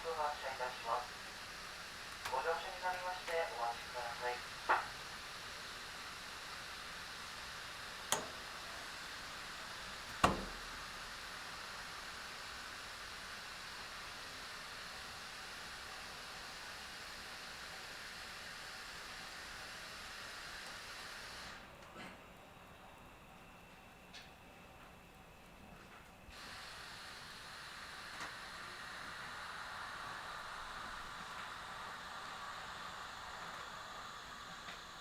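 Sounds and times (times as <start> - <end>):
steady hiss inside train car: 0.0 - 35.0
sharp knocks: 10.2 - 10.6.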